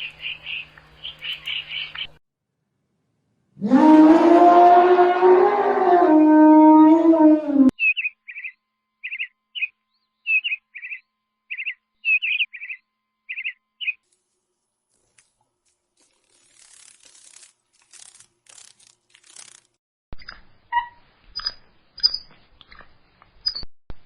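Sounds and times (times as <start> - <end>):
bird chirping: 0.0 - 2.2, 7.8 - 14.0, 20.2 - 23.7.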